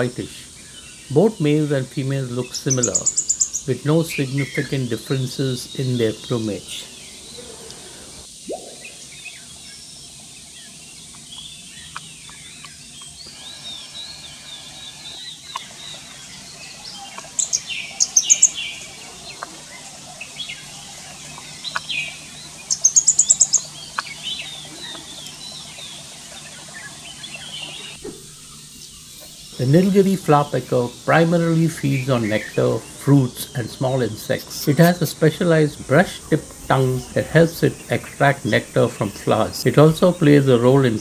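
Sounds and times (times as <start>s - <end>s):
birds chirping: 0.0s - 41.0s
bird's sharp high notes: 8.4s - 9.5s.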